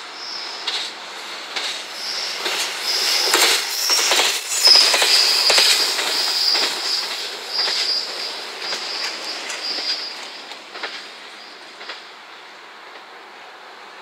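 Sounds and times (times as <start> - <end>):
train running away: 0.0 - 14.0
wheels clacking over rail joints: 0.6 - 12.2
wheels squealing: 1.6 - 12.0.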